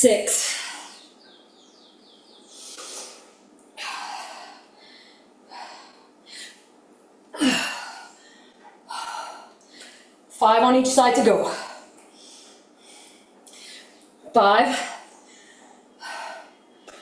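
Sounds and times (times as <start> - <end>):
woman breathing hard: 2.5 - 6.7, 7.4 - 10.2, 11.5 - 14.0, 14.8 - 16.7.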